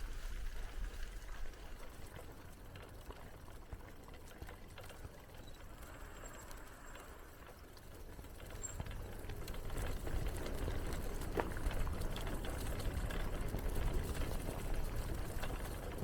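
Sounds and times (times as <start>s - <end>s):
bicycle tyres rolling: 0.0s - 16.0s
small clicks and rattles: 0.0s - 16.0s
wind rumbling on microphone: 0.0s - 16.0s.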